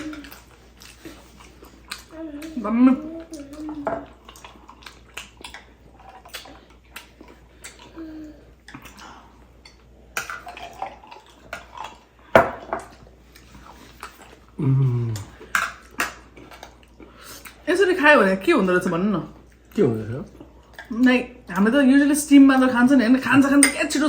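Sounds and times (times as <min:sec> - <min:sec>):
wet mouth eating sounds: 0:00.0 - 0:12.3, 0:12.9 - 0:17.6
low hum of a voice: 0:02.1 - 0:04.2, 0:14.6 - 0:15.4
utensils clinking on plates: 0:23.3 - 0:24.0.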